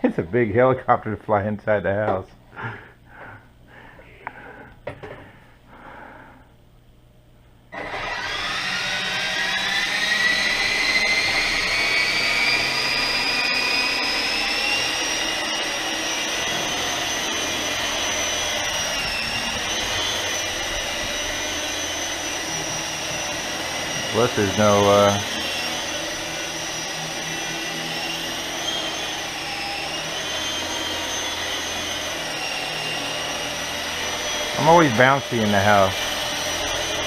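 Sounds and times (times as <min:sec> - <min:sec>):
electric motor whine: 0:07.8 - 0:37.0.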